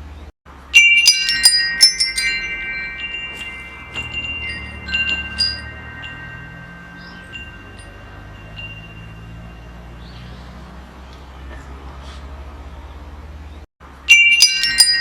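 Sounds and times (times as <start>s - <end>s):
low steady rumble: 0.0s - 11.1s
metal wind chimes clanging: 0.6s - 11.0s, 13.8s - 15.0s.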